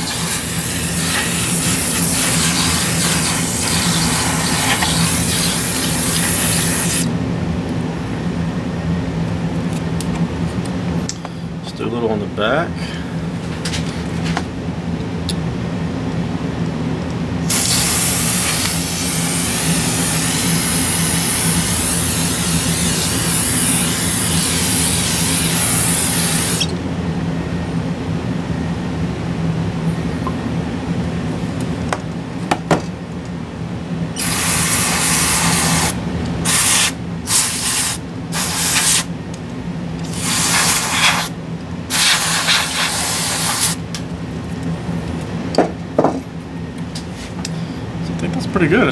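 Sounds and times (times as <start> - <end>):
spray can hissing: 0.0 - 7.1, 17.5 - 26.7, 34.2 - 39.1, 40.1 - 41.3, 41.9 - 43.8
steady low hum: 0.0 - 48.9.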